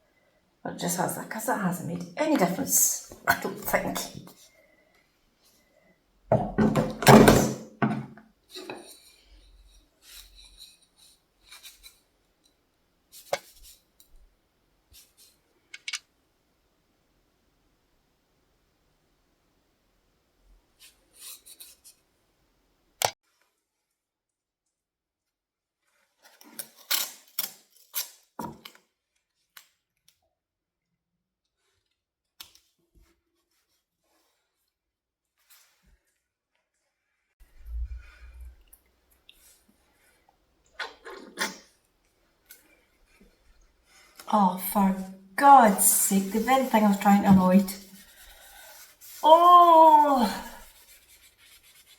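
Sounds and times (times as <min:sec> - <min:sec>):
scratchy rubbing of wax on wood: 0:45.4 - 0:49.3, 0:50.6 - 0:51.9.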